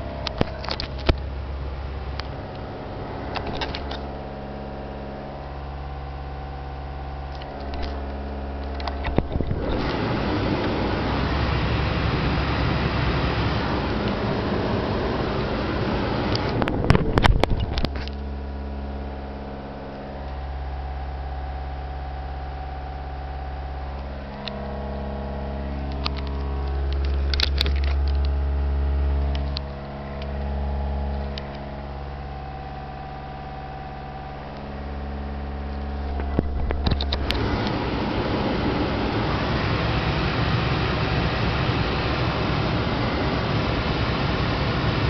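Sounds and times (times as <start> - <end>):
broad rushing noise: 0.0 - 45.0
car engine hum from cabin: 0.0 - 45.0
clicks: 0.1 - 1.3, 2.1 - 4.1, 23.9 - 24.7, 31.1 - 31.7, 35.7 - 37.8.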